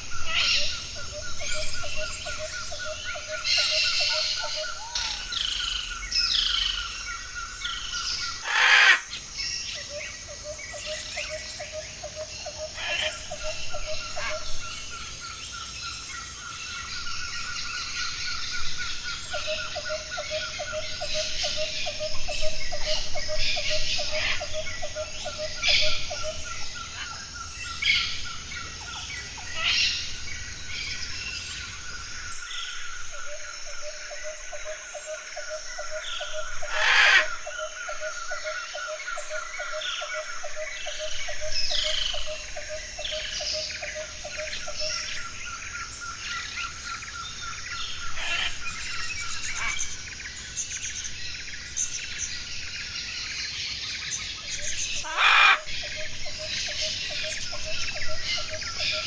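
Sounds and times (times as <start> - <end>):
loud harsh bird calls: 0.0 - 10.0, 35.5 - 45.4, 47.9 - 50.2, 54.0 - 59.0
birds calling and chirping: 0.0 - 59.0.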